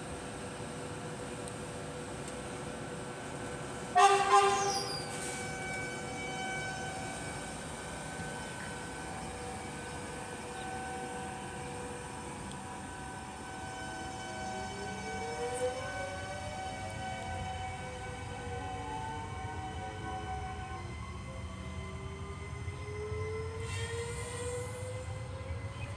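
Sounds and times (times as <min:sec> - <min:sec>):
train running hum: 0:00.0 - 0:25.9
train horn blast: 0:03.9 - 0:07.5, 0:12.6 - 0:22.0, 0:23.5 - 0:25.0.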